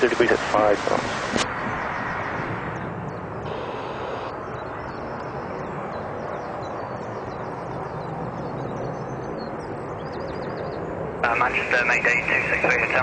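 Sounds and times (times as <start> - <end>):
jet airliner engines roaring: 0.0 - 13.0.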